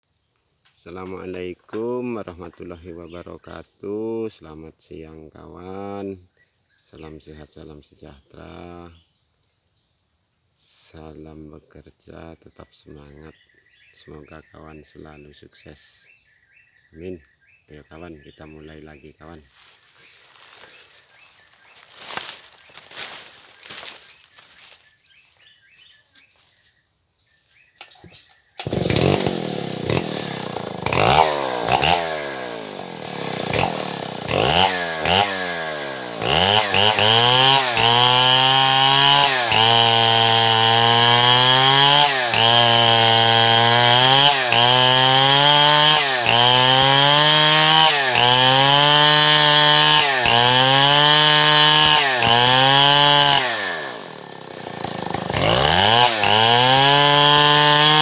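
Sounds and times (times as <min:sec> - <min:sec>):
chainsaw revving: 0:20.2 - 0:21.0, 0:21.8 - 0:24.6, 0:28.6 - 0:58.0.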